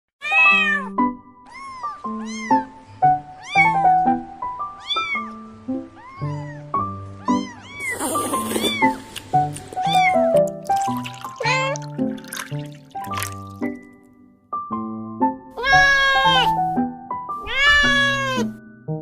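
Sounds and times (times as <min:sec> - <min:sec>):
kitten meowing: 0:00.2 - 0:00.9, 0:01.5 - 0:02.7, 0:04.8 - 0:05.4, 0:06.0 - 0:09.0, 0:09.8 - 0:10.4, 0:15.6 - 0:16.6, 0:17.4 - 0:18.5
background music: 0:00.2 - 0:19.0.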